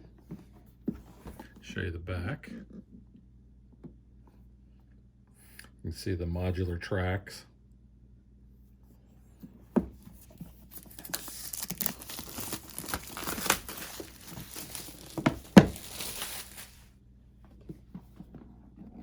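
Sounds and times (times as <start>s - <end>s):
plastic wrapping tearing and crumpling: 10.6s - 16.9s.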